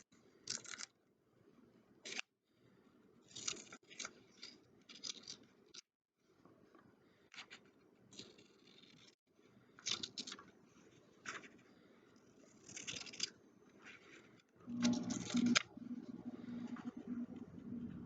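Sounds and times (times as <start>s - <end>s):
scissors cutting paper: 2.0s - 2.3s, 3.3s - 5.8s, 7.4s - 9.2s, 12.4s - 15.7s
low hum: 14.6s - 18.0s.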